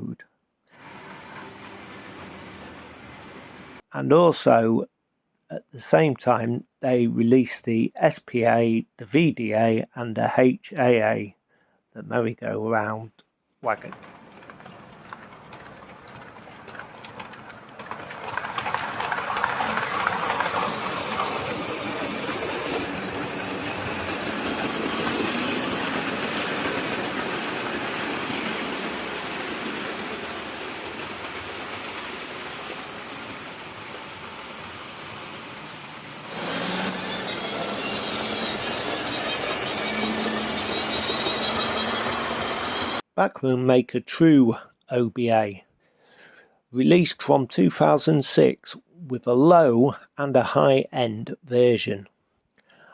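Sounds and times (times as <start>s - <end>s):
model train running on track: 0.1s - 4.7s, 13.6s - 43.1s.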